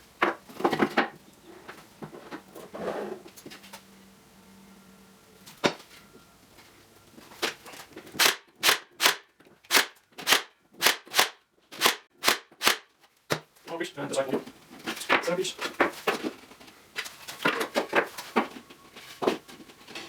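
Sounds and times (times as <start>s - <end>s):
nail gun firing: 8.2s - 12.9s.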